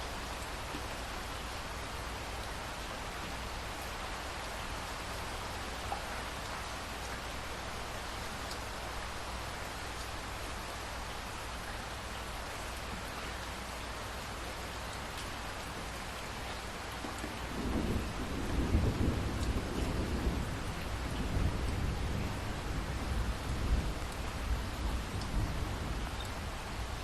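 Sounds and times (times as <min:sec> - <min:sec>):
steady rain falling: 0:00.0 - 0:27.0
rolling thunder rumble: 0:17.3 - 0:26.1.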